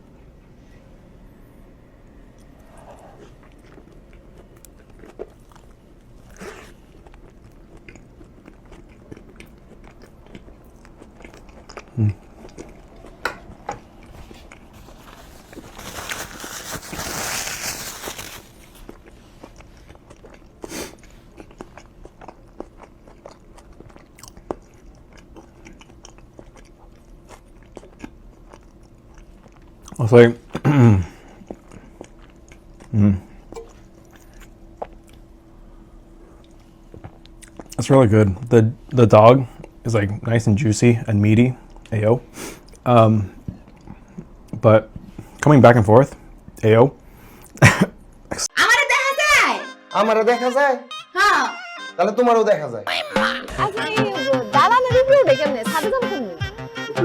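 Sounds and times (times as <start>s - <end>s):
person chewing food: 2.4s - 35.3s, 36.2s - 37.8s, 41.6s - 45.3s.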